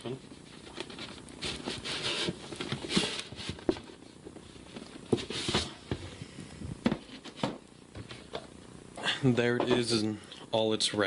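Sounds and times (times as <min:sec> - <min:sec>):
cardboard scraping and rustling: 0:00.1 - 0:06.2.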